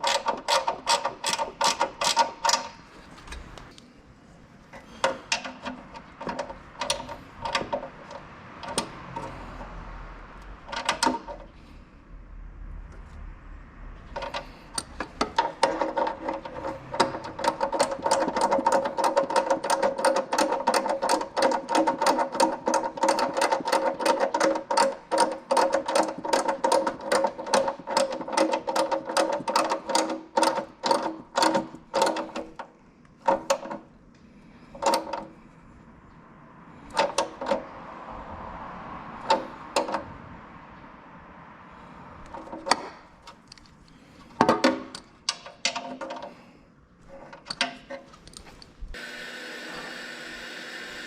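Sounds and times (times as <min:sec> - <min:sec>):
ratchet wrench clicking: 0:00.0 - 0:02.8.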